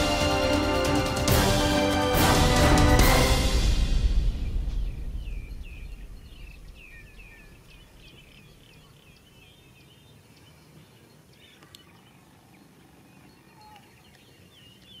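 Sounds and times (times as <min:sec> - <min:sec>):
background music: 0:00.0 - 0:07.6
small birds chirping: 0:04.4 - 0:15.0.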